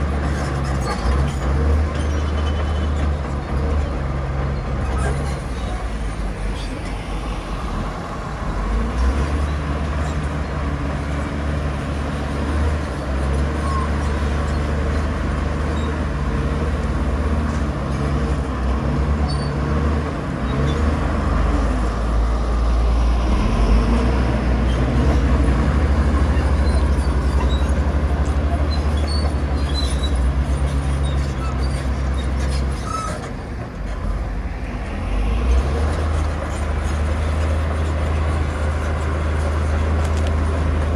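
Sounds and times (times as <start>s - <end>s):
bulldozer diesel engine under load: 0.0s - 40.9s.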